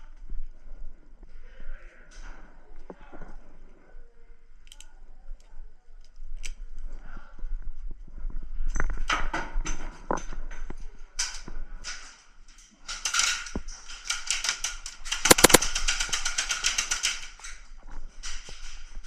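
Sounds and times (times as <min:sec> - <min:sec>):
airsoft guns firing: 0:15.3 - 0:15.8.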